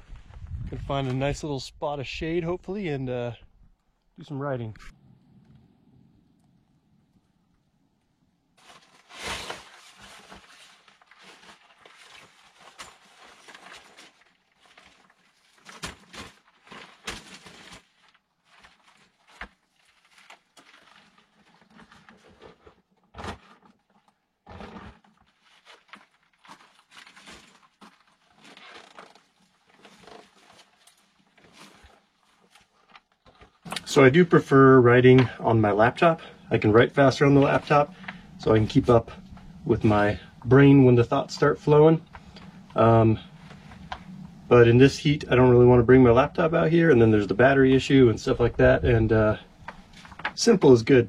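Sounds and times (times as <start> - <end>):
rustling and scuffing: 8.6 - 22.7.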